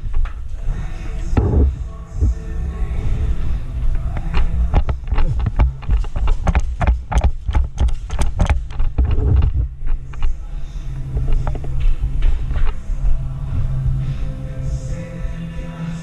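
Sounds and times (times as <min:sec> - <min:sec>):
bass-heavy background music: 0:00.0 - 0:16.0.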